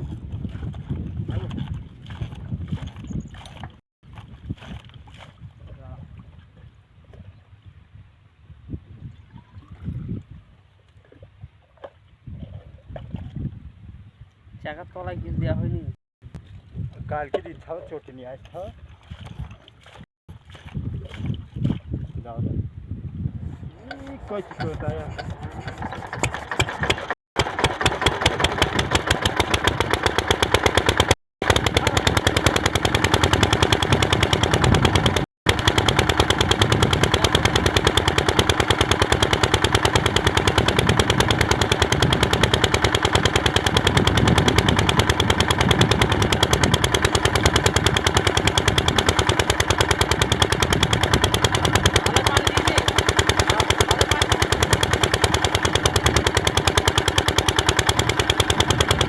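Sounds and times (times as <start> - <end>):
diesel water pump engine running: 0.0 - 5.9, 23.7 - 59.0.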